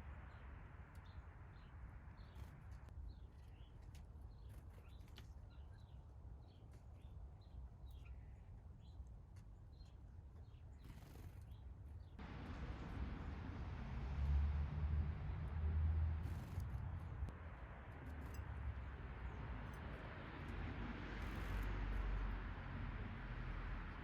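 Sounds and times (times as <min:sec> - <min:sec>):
songbirds chirping: 0:00.0 - 0:14.1.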